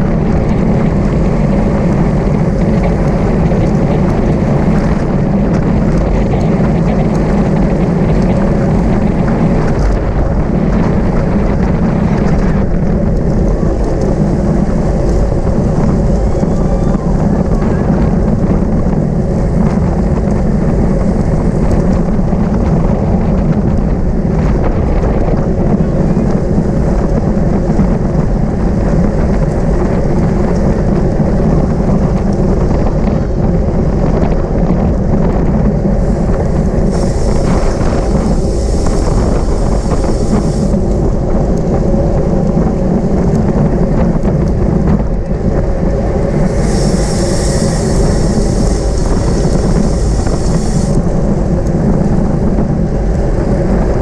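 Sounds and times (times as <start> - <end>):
road noise: 0.0 - 54.0
wind rumble on microphone: 0.0 - 54.0
high hiss: 36.0 - 41.0, 46.4 - 51.2.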